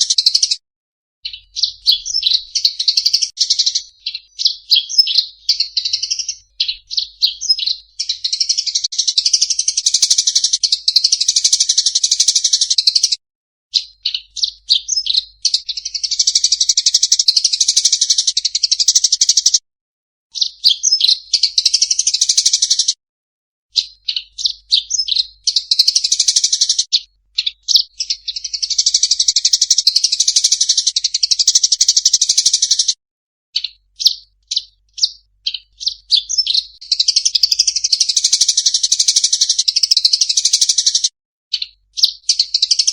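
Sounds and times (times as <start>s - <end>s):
songbird chirping and twittering: 0.0s - 0.6s, 1.2s - 19.6s, 20.3s - 23.0s, 23.7s - 33.0s, 33.6s - 42.9s.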